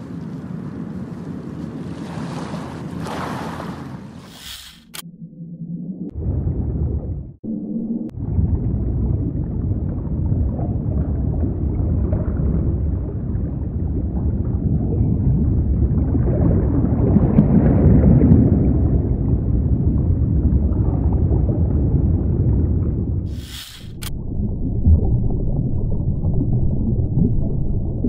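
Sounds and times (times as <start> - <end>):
brief hiss: 4.2 - 5.0, 23.3 - 24.1
low rumbling ambience: 4.2 - 28.0
sharp click: 4.4 - 5.1, 23.5 - 24.1.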